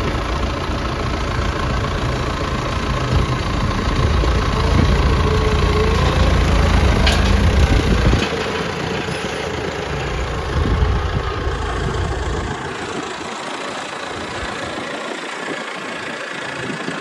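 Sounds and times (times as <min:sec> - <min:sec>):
wind rumble on microphone: 0:00.0 - 0:13.4
engine idling: 0:00.0 - 0:17.0.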